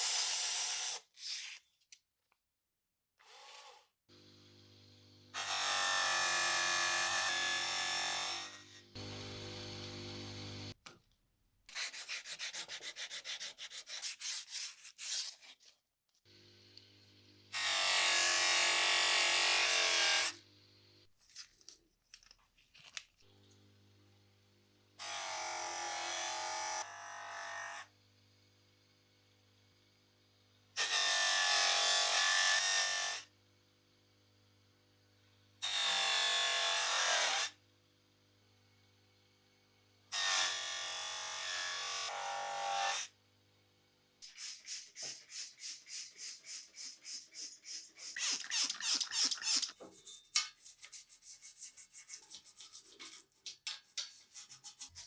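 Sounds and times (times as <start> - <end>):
small electric motor tool running: 5.3 - 10.8, 17.5 - 20.4, 25.0 - 27.9, 44.4 - 49.7
rapid rubbing strokes: 44.2 - 55.0.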